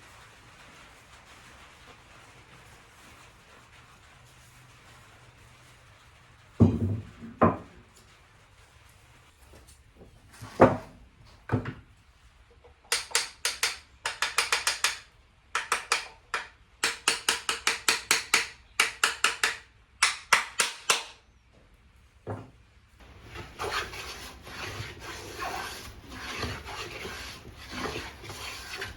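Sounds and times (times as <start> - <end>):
plane strokes on wood: 23.0 - 28.9.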